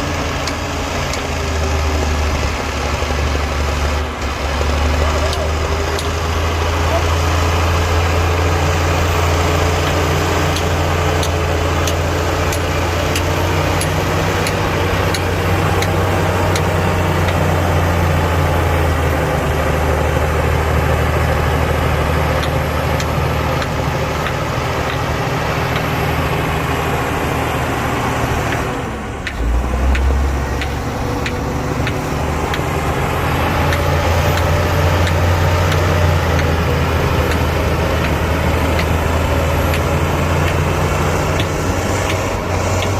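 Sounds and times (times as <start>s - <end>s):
diesel earthmoving machine running: 0.0s - 42.9s.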